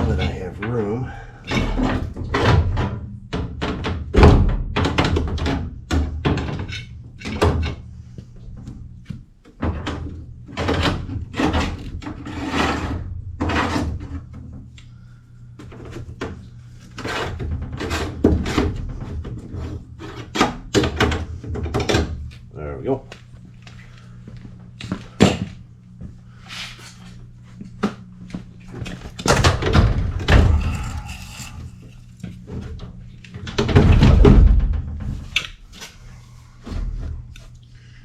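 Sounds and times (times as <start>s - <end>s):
low steady hum: 0.0s - 38.0s
metal thunks and bangs: 1.5s - 6.7s, 29.3s - 31.1s, 33.4s - 35.4s.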